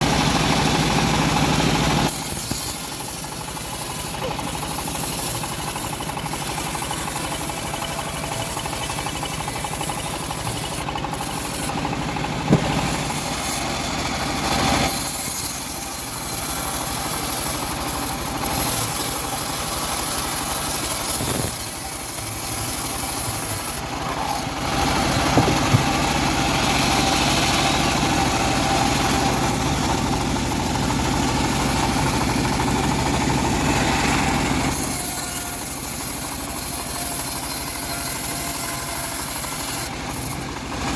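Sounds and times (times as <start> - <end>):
bandsaw mill sawing log: 0.0 - 40.9
sharp knock: 12.4 - 13.0.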